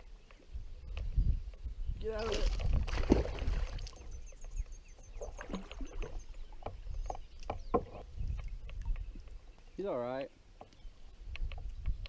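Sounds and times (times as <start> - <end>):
water splashing: 2.1 - 4.1, 5.2 - 6.7.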